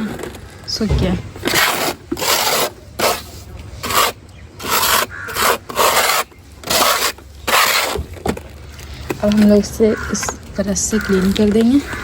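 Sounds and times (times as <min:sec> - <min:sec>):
gritty powder scraping: 0:00.0 - 0:08.2.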